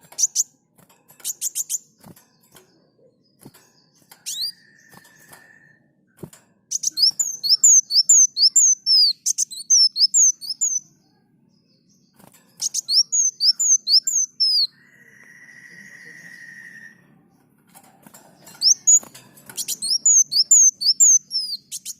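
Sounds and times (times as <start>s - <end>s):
sunbird singing rapid chirps: 6.7s - 11.0s, 11.7s - 17.4s, 18.4s - 21.9s
long steady whistle: 14.8s - 17.1s.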